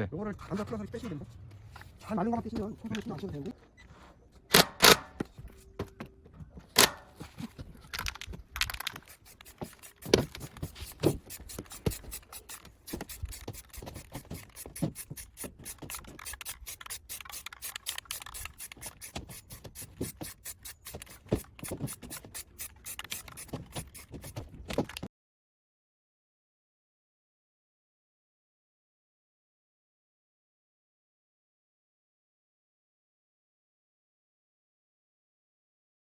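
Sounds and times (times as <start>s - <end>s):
metal stove parts scraping and clicking: 6.6s - 24.3s.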